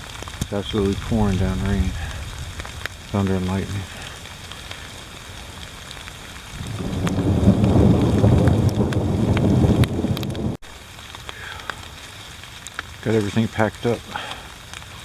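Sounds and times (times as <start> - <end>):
thunder rumbling: 0.0 - 4.2, 5.7 - 10.6
heavy rain pouring: 0.0 - 15.0
raindrops ticking: 0.0 - 15.0.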